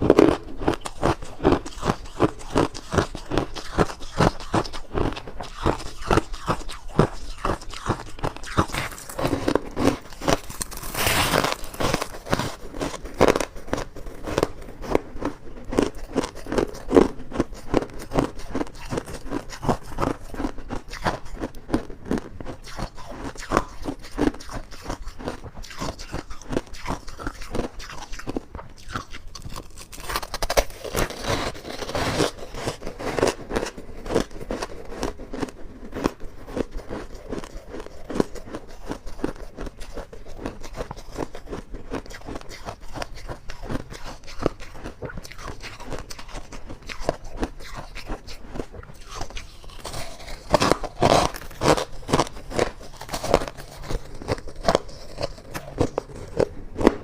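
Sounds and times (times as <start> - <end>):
ice crunched between teeth: 0.0 - 57.0.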